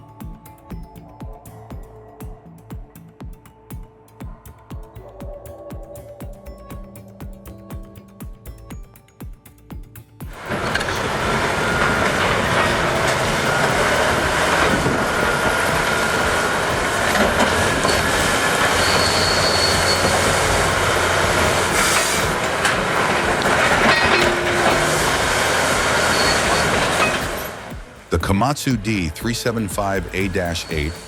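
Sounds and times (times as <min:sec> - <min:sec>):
metallic clanking and squealing: 0:10.4 - 0:27.8
heavy machinery running: 0:10.4 - 0:31.0.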